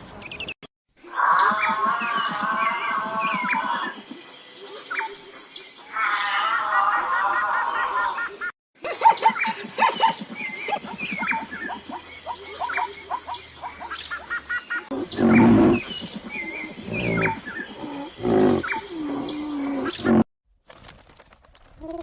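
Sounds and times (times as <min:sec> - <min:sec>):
birds chirping: 0:00.1 - 0:20.2
monkey calls: 0:06.0 - 0:13.4, 0:14.3 - 0:20.2.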